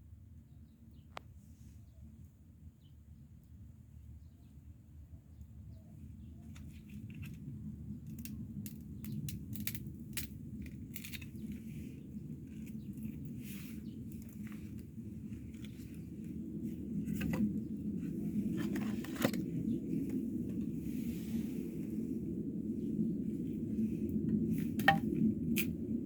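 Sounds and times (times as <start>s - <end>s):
low fire rumble: 0.0s - 26.0s
bonfire pops and snaps: 7.1s - 11.7s, 24.2s - 25.8s.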